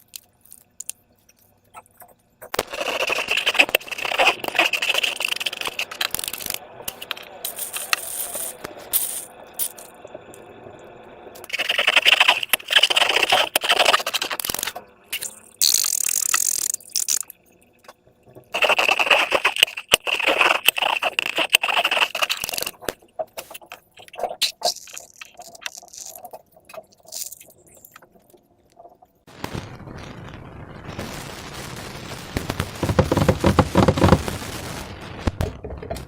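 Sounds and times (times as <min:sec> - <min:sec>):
slime squeezed crackling: 0:02.5 - 0:07.1, 0:18.6 - 0:28.2.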